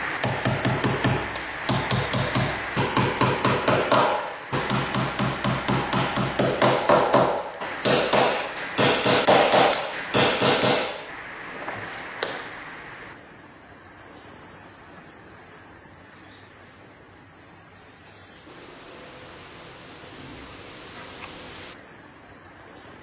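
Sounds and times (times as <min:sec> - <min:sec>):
rapid ringing hammer strikes: 0:00.2 - 0:11.1.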